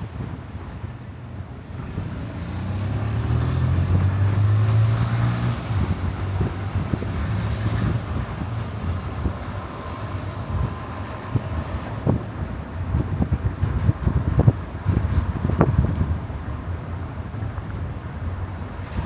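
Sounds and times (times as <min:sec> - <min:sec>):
road noise: 0:00.0 - 0:19.0
car engine hum: 0:00.1 - 0:19.0.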